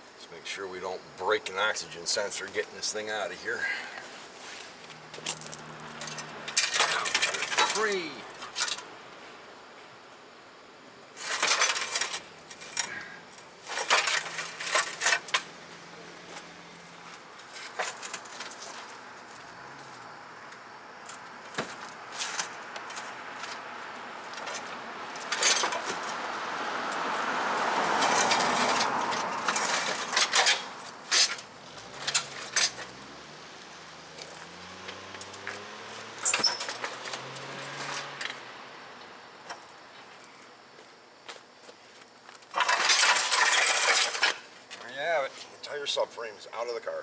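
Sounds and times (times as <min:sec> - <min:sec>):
car passing by: 0:03.4 - 0:08.0, 0:14.6 - 0:40.6
metallic clanks and knocks: 0:05.2 - 0:08.9.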